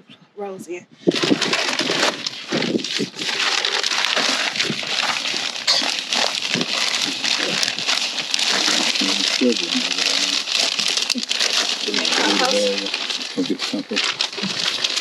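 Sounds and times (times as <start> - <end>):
soil scraping and crunching: 1.0 - 15.0.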